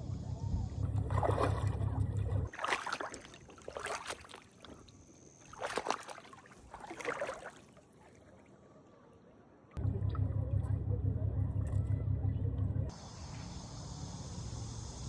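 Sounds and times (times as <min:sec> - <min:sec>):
paddle strokes through water: 0:00.9 - 0:09.0.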